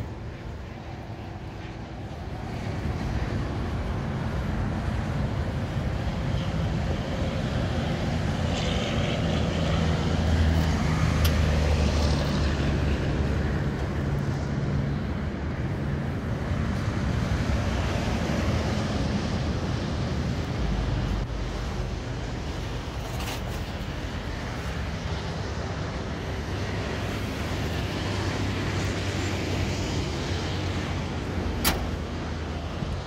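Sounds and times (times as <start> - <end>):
trunk lock click: 31.6 - 32.0.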